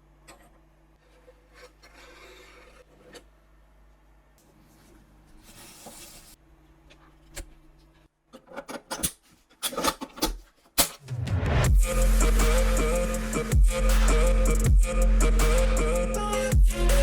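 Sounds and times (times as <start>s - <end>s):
music: 11.0s - 17.0s.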